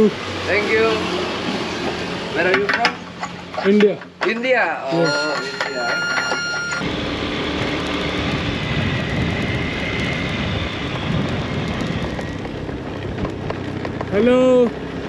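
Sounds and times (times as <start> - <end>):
scooter engine running: 6.5 - 15.0
wind buffeting microphone: 6.8 - 14.1.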